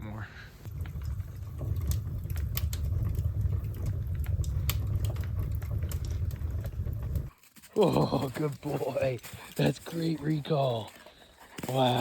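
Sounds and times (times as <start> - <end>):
low steady rumble: 0.0 - 7.3
wood fire crackling in stove: 0.0 - 12.0.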